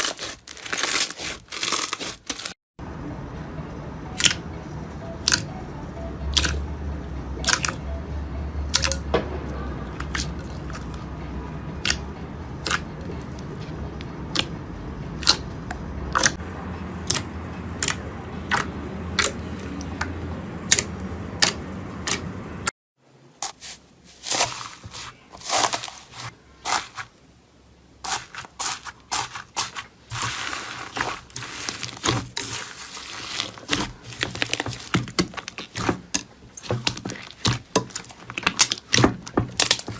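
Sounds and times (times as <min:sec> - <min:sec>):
dense slime crackling: 0:00.0 - 0:02.6, 0:23.4 - 0:27.1, 0:28.1 - 0:39.9.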